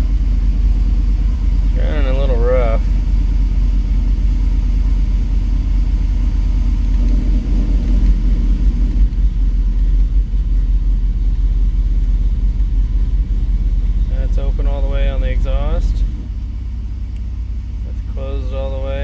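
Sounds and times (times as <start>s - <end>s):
engine rough low rumble: 0.0s - 19.0s.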